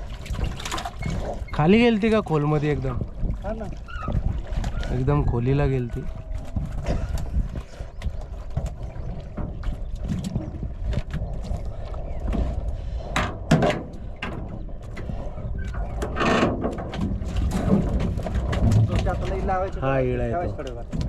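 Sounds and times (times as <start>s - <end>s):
water splashing against boat hull: 0.0s - 21.0s.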